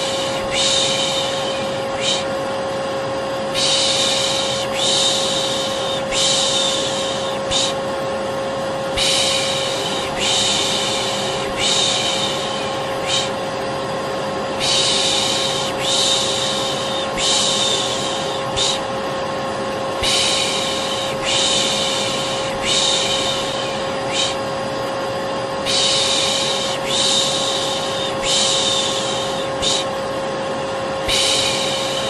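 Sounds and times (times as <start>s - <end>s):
person shushing: 0.0s - 2.4s, 3.6s - 7.9s, 9.0s - 13.5s, 14.6s - 18.9s, 20.0s - 24.5s, 25.6s - 30.0s, 31.0s - 32.0s
vacuum cleaner humming: 0.0s - 32.0s.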